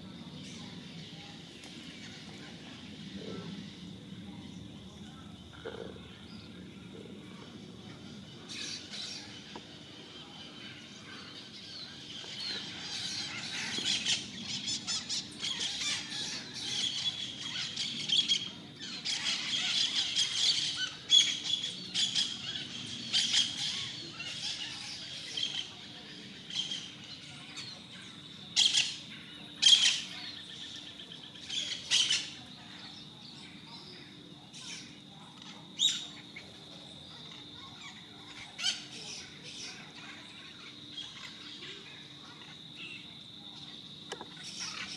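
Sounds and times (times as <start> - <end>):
parrots squawking and chattering: 8.2 - 10.0, 11.1 - 27.7, 28.6 - 32.4, 37.2 - 41.6, 44.1 - 44.9.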